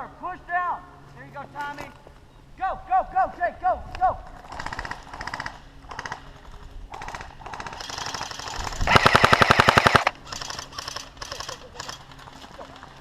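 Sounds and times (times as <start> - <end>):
airsoft guns firing bursts: 4.4 - 6.3, 6.9 - 12.0.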